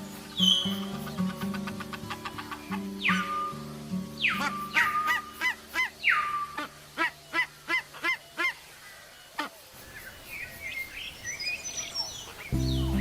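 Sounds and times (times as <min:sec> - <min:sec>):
bird honking: 0:04.2 - 0:08.6.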